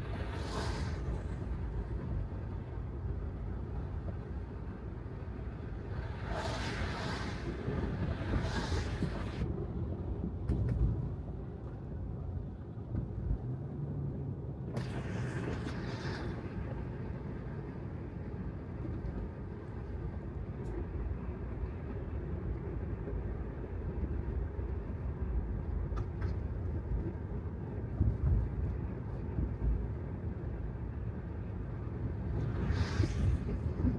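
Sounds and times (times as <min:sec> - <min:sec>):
tyres hissing on wet pavement: 0:00.0 - 0:01.6, 0:06.0 - 0:09.4.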